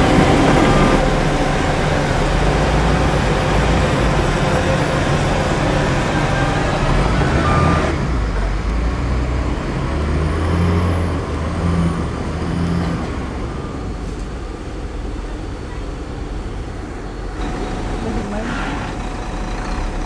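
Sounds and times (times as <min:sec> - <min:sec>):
loud rushing noise: 0:00.0 - 0:07.9
heavy diesel engine revving: 0:00.0 - 0:20.0.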